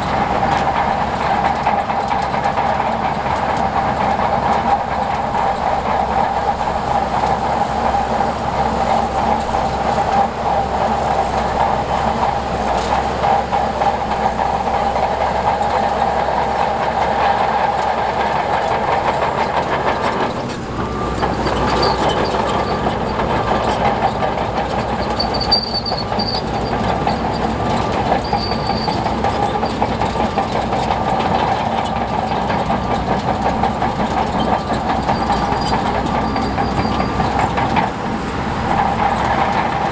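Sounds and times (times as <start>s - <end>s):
diesel engine running: 0.0s - 39.9s
steel crawler tracks clattering: 0.0s - 39.9s.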